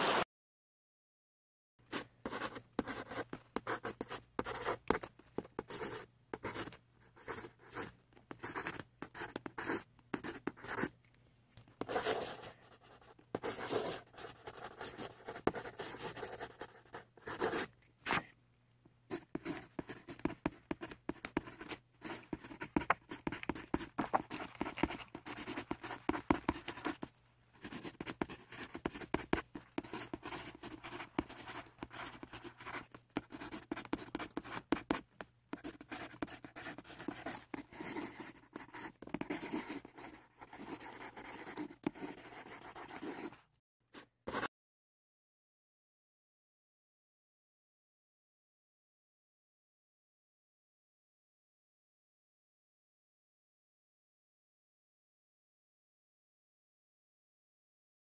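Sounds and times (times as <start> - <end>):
pencil scratching on paper: 1.9 - 10.9, 11.8 - 18.3, 19.1 - 43.4, 44.0 - 44.5.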